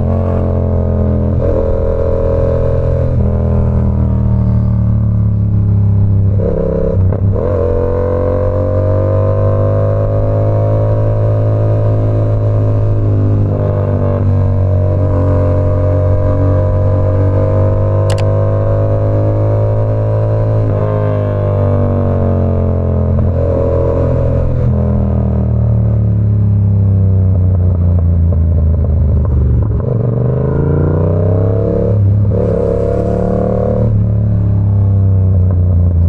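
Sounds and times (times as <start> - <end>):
motorcycle engine revving: 0.0 - 24.6
sharp tick: 18.1 - 18.4.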